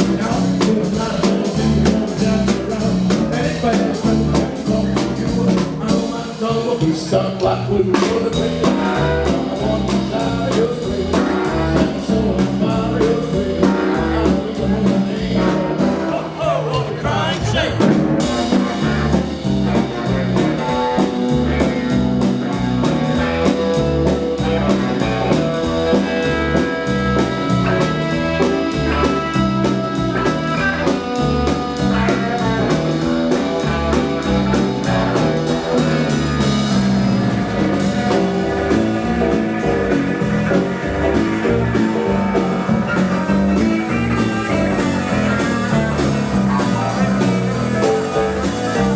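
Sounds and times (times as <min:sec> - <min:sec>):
person singing: 0:00.0 - 0:36.6
drums beating fast: 0:00.0 - 0:48.9
live blues band playing: 0:00.0 - 0:48.9.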